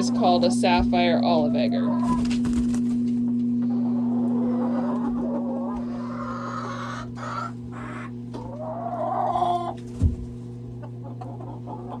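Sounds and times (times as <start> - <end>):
hens clucking: 0.0 - 12.0
steady low hum: 0.0 - 12.0.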